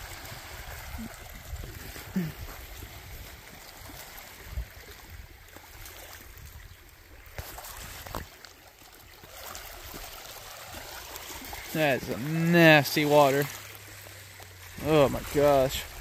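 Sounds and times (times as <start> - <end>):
wind on microphone: 0.0 - 5.4
small waves lapping: 0.0 - 16.0.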